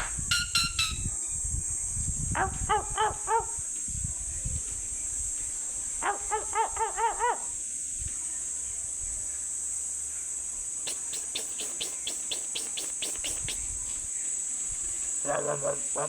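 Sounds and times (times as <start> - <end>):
high insect trill: 0.2 - 16.0
fast clicking calls: 0.3 - 1.1, 10.9 - 13.7
animal pitched calls: 10.9 - 13.6, 15.2 - 16.0.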